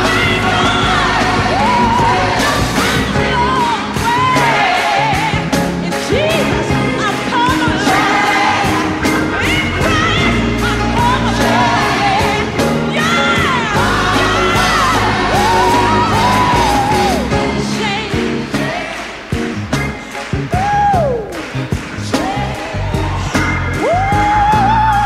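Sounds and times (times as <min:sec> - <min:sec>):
person singing gospel: 0:00.0 - 0:19.4, 0:21.9 - 0:25.0
band with bass and drums: 0:00.0 - 0:25.0.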